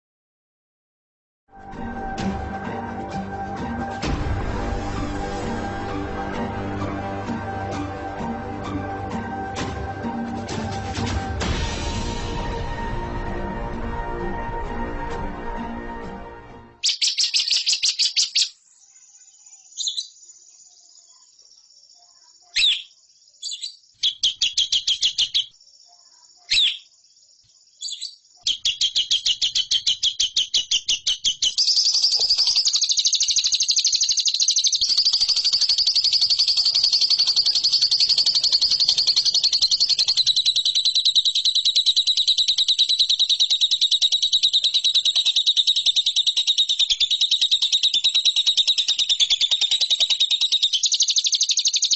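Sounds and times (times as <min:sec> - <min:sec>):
lovebird chattering trills: 0:16.8 - 0:18.5, 0:22.4 - 0:25.6, 0:27.8 - 0:51.9.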